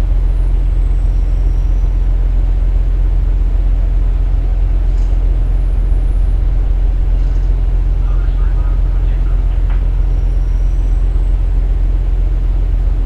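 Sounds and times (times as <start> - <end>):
diesel engine drone: 0.0 - 13.0
train wheels on rail: 4.8 - 13.0.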